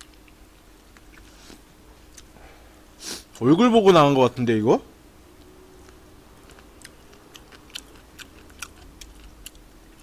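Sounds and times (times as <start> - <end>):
person chewing wet mouth clicks: 5.8 - 10.0.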